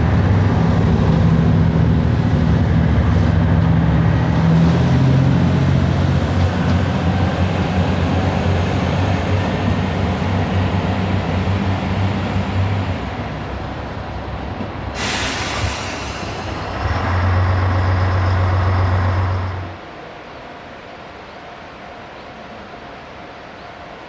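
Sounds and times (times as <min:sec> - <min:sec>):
diesel railcar engine humming: 0:00.0 - 0:24.0
hiss of released air: 0:14.9 - 0:16.8.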